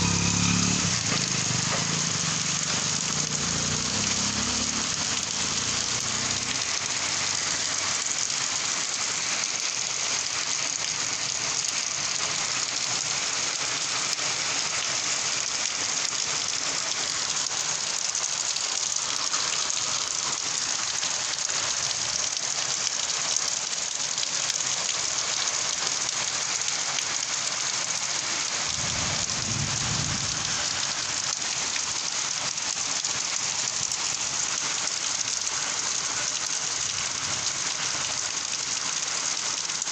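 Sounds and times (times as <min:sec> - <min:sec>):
steady rain falling: 0:00.0 - 0:39.9
low rumble: 0:28.8 - 0:30.4.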